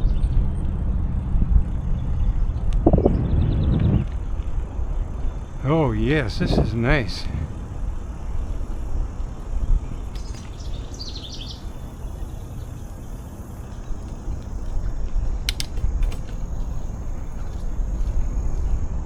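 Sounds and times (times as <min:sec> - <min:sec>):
wind and bicycle rumble: 0:00.0 - 0:19.0
bird chirping: 0:01.7 - 0:14.8
sharp clicks: 0:13.6 - 0:17.0.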